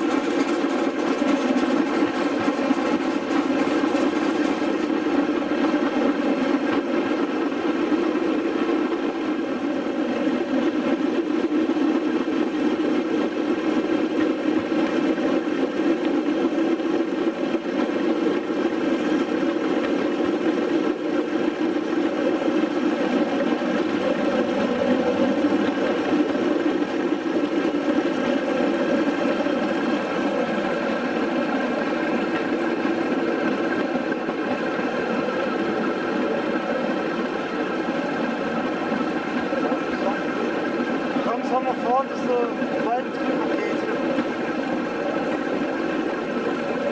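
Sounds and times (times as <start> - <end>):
engine droning: 0.0 - 46.9.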